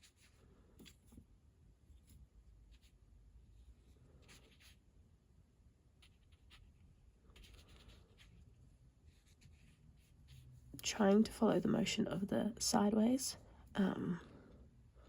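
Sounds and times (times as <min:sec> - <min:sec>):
wet brush strokes on paper: 0:01.9 - 0:04.9, 0:05.9 - 0:10.7.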